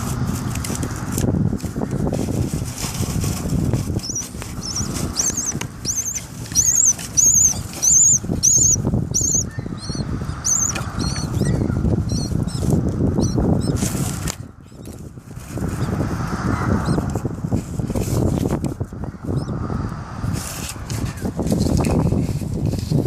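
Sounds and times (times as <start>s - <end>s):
scratching and fluttering in pipe: 0.0s - 9.3s, 16.8s - 19.0s, 20.3s - 23.0s
birds chirping: 3.5s - 17.3s, 18.7s - 19.7s.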